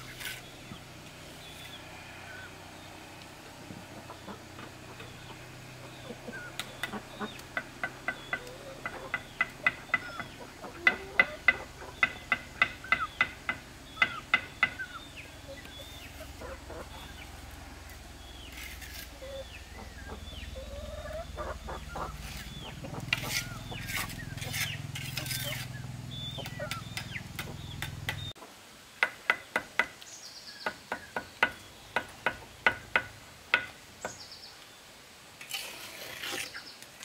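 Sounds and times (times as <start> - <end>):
chicken clucking: 4.0 - 12.2, 15.5 - 17.2, 19.1 - 27.8.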